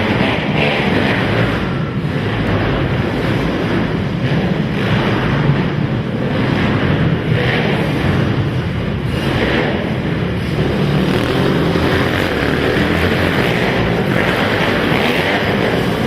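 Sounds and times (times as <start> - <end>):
racing quad engines revving: 0.0 - 16.0.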